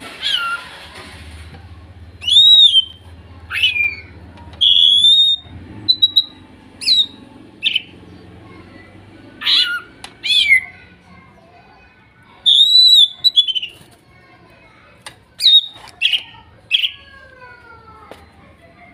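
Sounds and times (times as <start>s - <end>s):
birds whistling and squawking: 0.0s - 0.8s, 2.0s - 10.8s, 12.3s - 13.9s, 15.4s - 17.1s.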